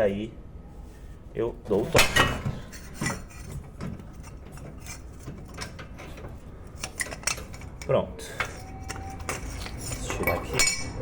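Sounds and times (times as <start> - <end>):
metallic tool clicks and clinks: 8.9 - 11.0.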